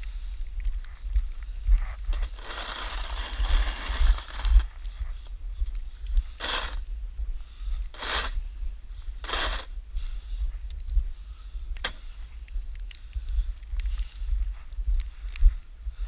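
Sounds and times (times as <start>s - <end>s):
steady low rumble: 0.0s - 16.0s
snow shovel scraping snow: 2.2s - 4.7s, 6.4s - 6.8s, 8.0s - 8.4s, 9.2s - 9.7s.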